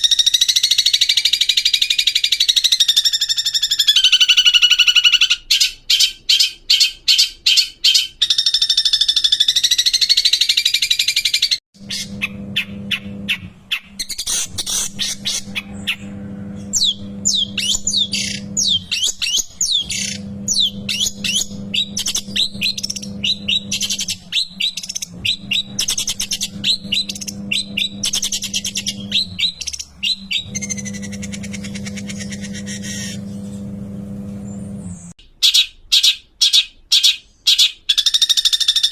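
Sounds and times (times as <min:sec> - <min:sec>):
shrike singing: 0:11.8 - 0:35.1
steady low hum: 0:11.8 - 0:35.2.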